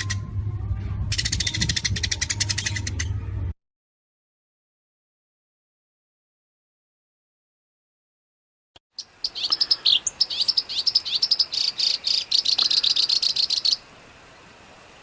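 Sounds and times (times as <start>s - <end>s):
songbird fast chattering song: 1.1s - 3.2s, 8.9s - 13.9s.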